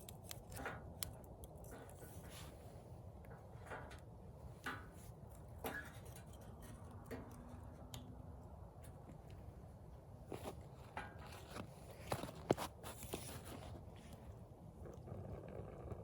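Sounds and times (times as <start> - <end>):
campfire crackling and popping: 0.0 - 1.7.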